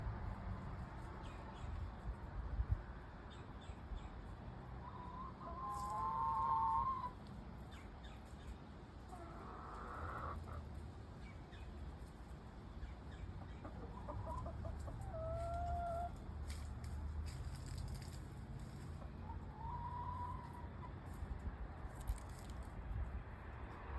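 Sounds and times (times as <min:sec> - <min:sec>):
chickens calling: 0:04.8 - 0:12.2, 0:12.8 - 0:16.6, 0:17.4 - 0:21.3.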